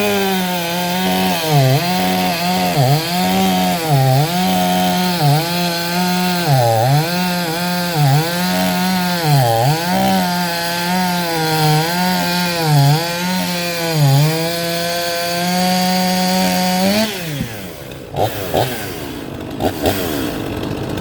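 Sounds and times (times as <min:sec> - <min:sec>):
chainsaw running at high revs: 0:00.0 - 0:21.0.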